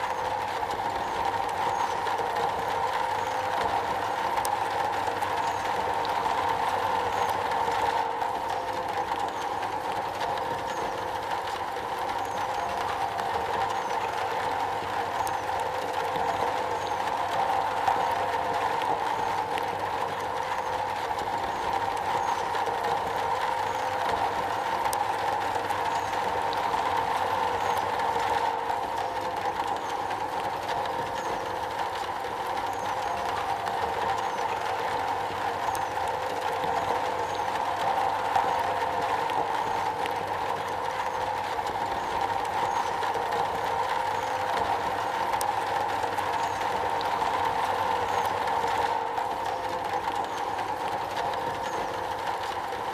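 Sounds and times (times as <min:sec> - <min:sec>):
rain on a metal roof: 0:00.0 - 0:52.9.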